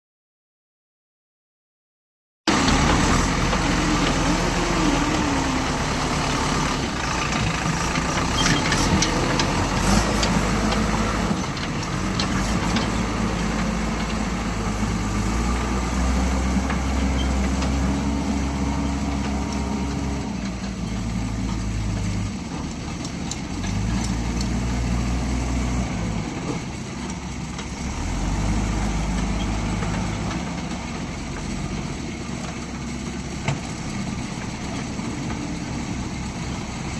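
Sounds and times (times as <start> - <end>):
diesel engine revving: 2.5 - 36.9.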